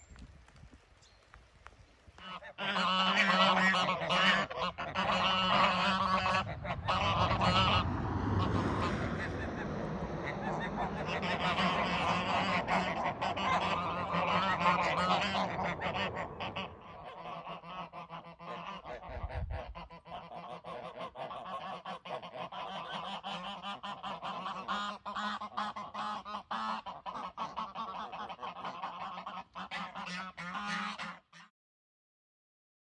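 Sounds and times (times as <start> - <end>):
waterfowl honking: 2.2 - 31.5.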